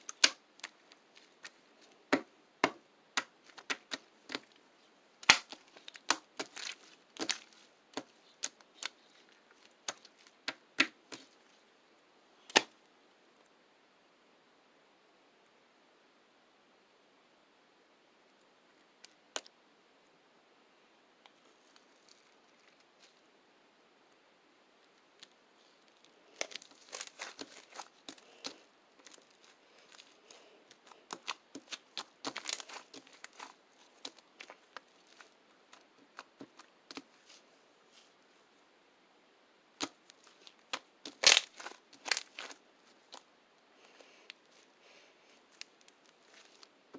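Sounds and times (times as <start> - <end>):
crinkling and crackling: 0.0 - 11.6, 21.2 - 23.3, 24.8 - 38.2, 39.8 - 46.9.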